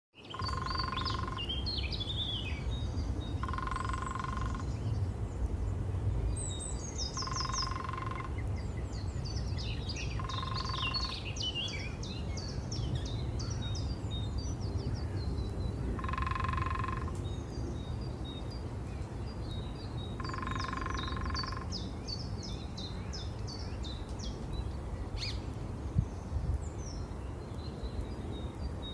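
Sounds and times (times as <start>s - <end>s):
songbirds chirping and singing: 0.2s - 5.0s, 6.4s - 28.9s
woodpecker drumming: 0.3s - 1.5s, 3.4s - 4.7s, 7.2s - 8.4s, 10.2s - 11.2s, 16.0s - 17.2s, 20.2s - 21.7s.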